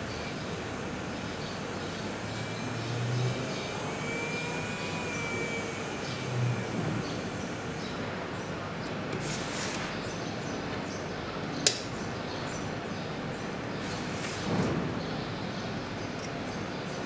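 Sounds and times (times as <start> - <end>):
electric nail drill whirring: 0.3 - 8.0
sharp click: 11.6 - 11.9.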